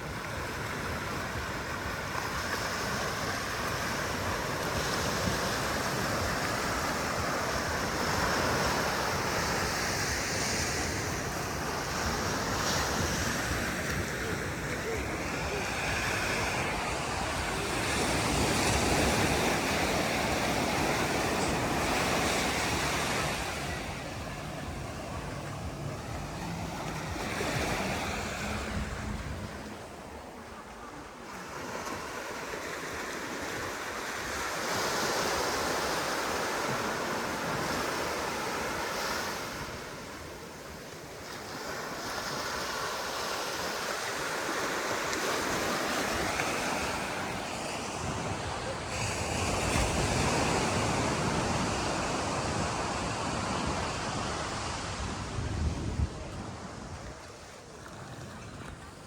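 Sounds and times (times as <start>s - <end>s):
wind rumble on microphone: 0.0s - 30.7s, 45.7s - 59.0s
sea waves breaking on sand: 0.0s - 59.0s.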